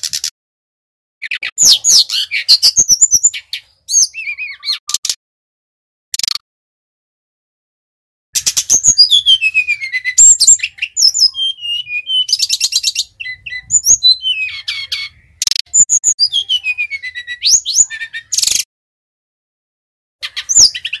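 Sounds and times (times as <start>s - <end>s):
bird singing whistles and trills: 1.2s - 5.0s, 8.4s - 18.7s, 20.2s - 21.0s.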